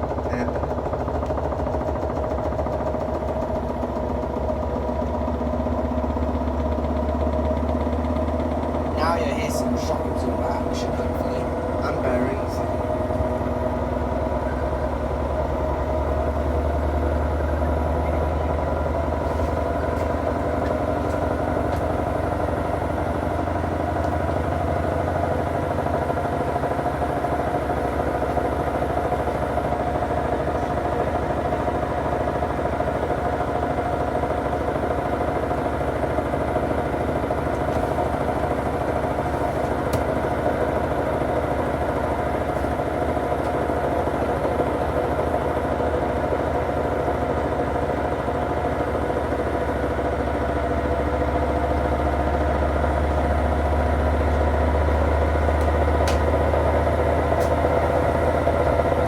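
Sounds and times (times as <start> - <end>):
washing machine drum spinning: 51.8 - 59.0.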